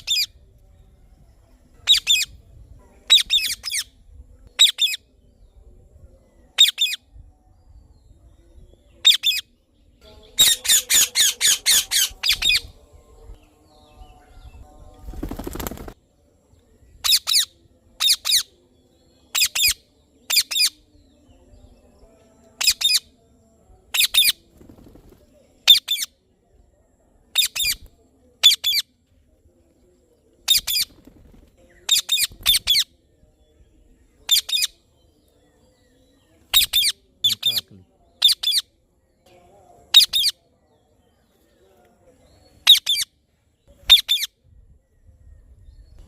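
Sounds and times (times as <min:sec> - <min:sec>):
flapping wings rustle: 0:15.0 - 0:16.0, 0:24.4 - 0:25.4, 0:30.7 - 0:31.7
parrot high-pitched calls: 0:43.9 - 0:44.3.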